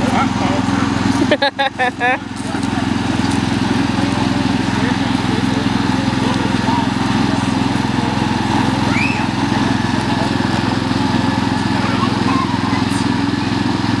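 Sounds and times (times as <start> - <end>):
tractor engine running steadily: 0.0 - 14.0.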